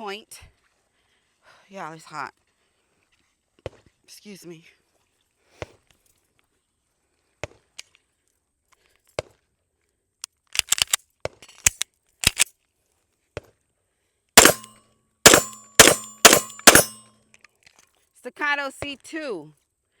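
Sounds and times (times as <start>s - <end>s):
metallic clicks of pistol handling: 10.2s - 12.5s, 14.4s - 17.0s
loud pistol shots: 14.4s - 14.7s, 15.3s - 17.0s.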